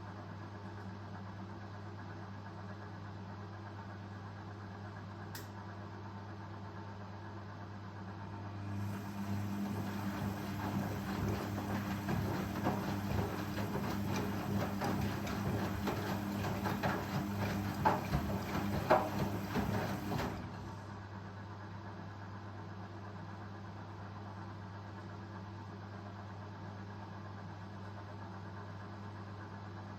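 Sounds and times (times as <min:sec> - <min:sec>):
washing machine motor hum: 0:07.8 - 0:22.2
drum knocking and rattling: 0:09.7 - 0:20.4.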